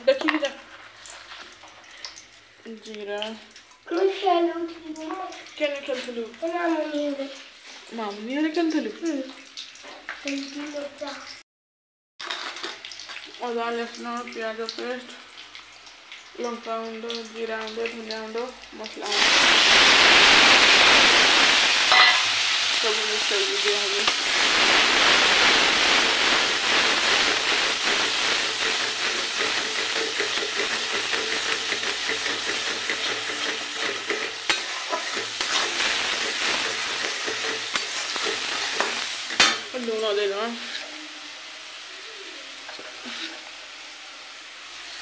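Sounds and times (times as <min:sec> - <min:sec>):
paste sizzling in hot oil: 0:12.2 - 0:45.0.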